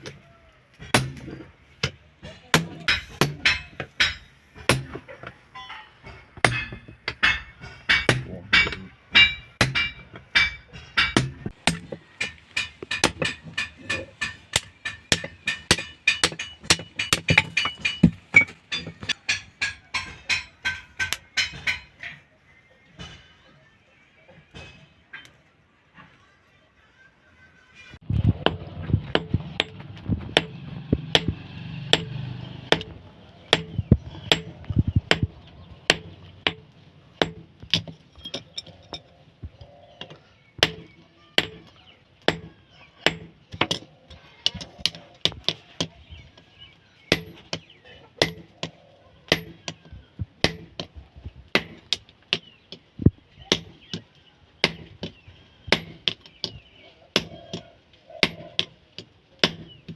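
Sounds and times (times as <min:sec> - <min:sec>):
hammer striking steel: 0:00.8 - 0:22.3, 0:28.4 - 0:29.8, 0:30.4 - 0:35.3.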